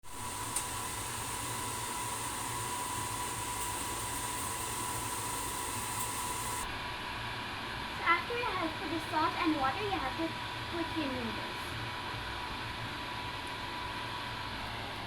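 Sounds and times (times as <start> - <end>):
faint steady whine: 0.0 - 6.8.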